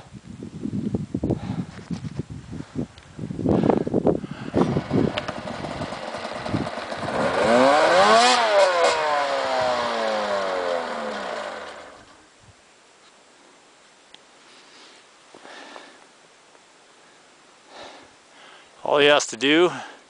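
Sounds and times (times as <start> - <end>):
snowmobile engine revving: 4.5 - 12.1.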